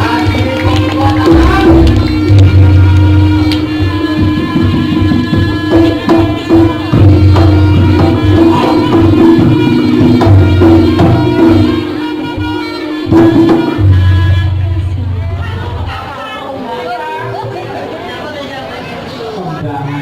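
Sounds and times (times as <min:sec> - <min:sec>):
hand drum strokes: 0:00.0 - 0:15.9.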